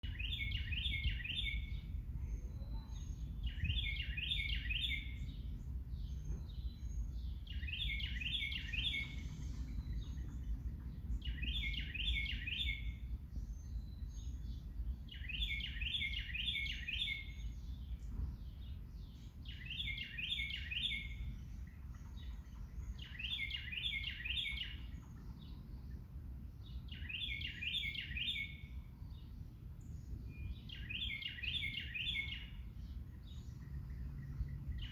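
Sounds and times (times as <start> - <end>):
steady low rumble: 0.0 - 16.1, 17.2 - 23.3, 24.8 - 27.2, 32.5 - 34.9
songbird singing: 0.0 - 34.9.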